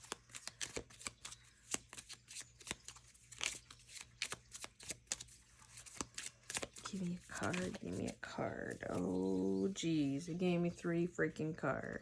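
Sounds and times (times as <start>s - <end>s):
cards being shuffled: 0.0s - 9.5s.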